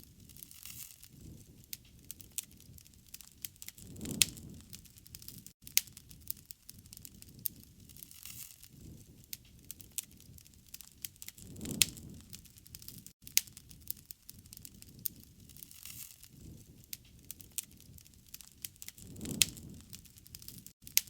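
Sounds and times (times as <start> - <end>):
burning wood popping: 0.0 - 21.0
wood fire crackling: 0.0 - 21.0.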